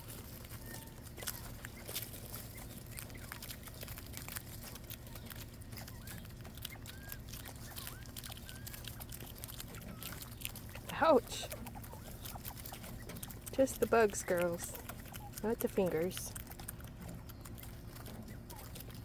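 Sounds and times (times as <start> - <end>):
quail pecking clicks: 0.0 - 19.0
soft bird chirps: 0.5 - 4.2, 4.9 - 10.8, 17.1 - 19.0.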